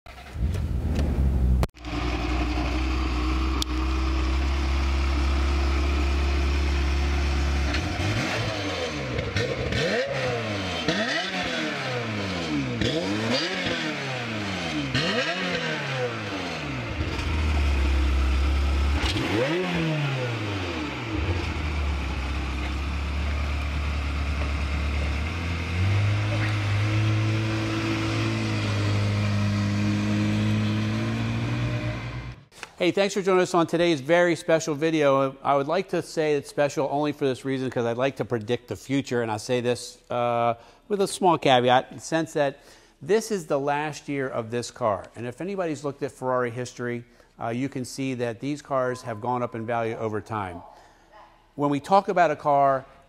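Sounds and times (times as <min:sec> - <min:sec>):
car engine starting and idling: 0:00.1 - 0:11.1, 0:14.8 - 0:32.5
engine revving: 0:00.2 - 0:32.5.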